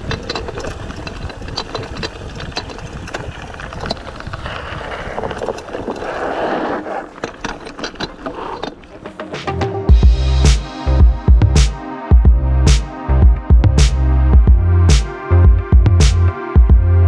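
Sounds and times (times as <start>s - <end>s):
wind on microphone: 0.0s - 6.4s
bicycle tyres rumbling on trail: 0.0s - 9.2s
bike clicks and rattles: 0.0s - 9.4s.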